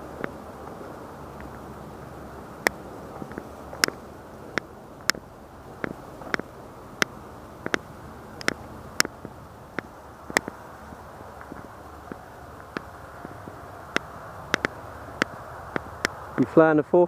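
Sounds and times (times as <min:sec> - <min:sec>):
low hiss: 0:00.0 - 0:17.0
sharp clicks: 0:02.6 - 0:10.6, 0:11.4 - 0:16.5.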